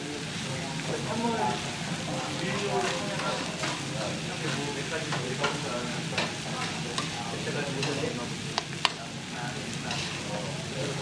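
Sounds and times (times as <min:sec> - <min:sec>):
rice sizzling in a frying pan: 0:00.0 - 0:11.0
spoon scraping a pan: 0:02.8 - 0:09.0, 0:09.8 - 0:10.4.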